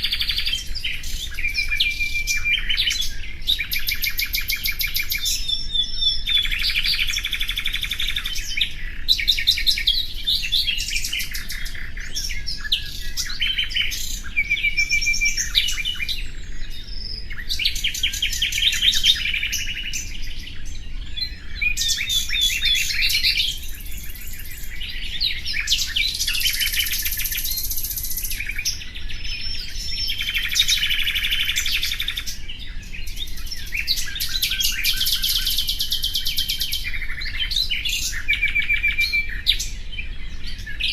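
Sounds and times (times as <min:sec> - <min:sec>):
nightingale singing: 0:00.0 - 0:40.9.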